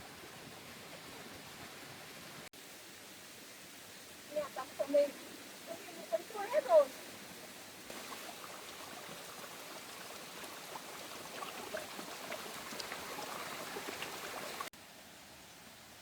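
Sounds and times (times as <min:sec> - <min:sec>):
running water: 0:00.0 - 0:15.5
rain: 0:00.0 - 0:16.0
water drips: 0:07.8 - 0:14.7.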